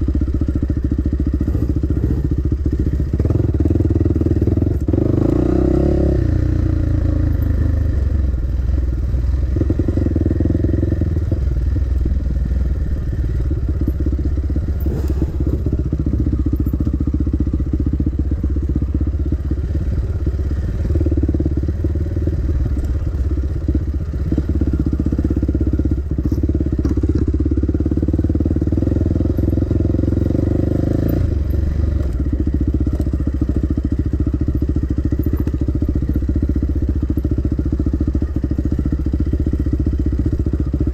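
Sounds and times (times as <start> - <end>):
dirt bike engine revving: 1.2 - 7.8, 14.6 - 16.6.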